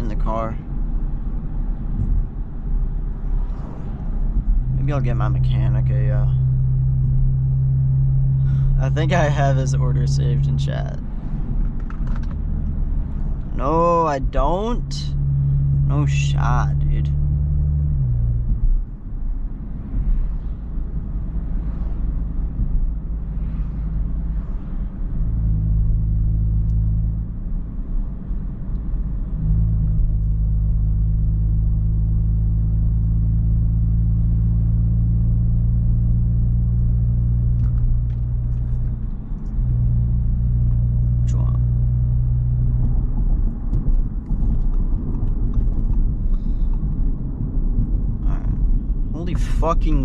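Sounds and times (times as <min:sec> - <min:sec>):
car engine and road noise: 0:00.0 - 0:50.0.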